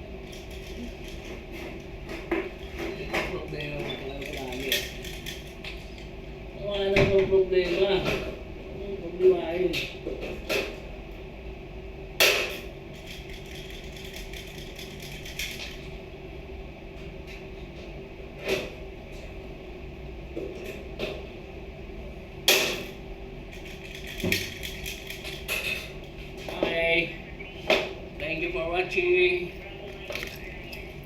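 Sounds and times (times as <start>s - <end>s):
steady hum: 0.0s - 31.0s
objects knocking and clattering: 23.5s - 26.6s.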